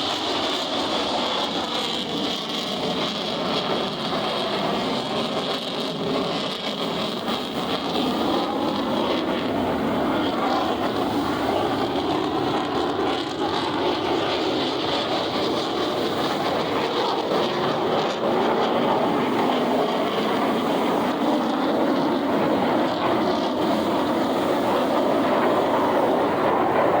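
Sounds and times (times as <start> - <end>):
jet aircraft engines roaring: 0.0 - 27.0.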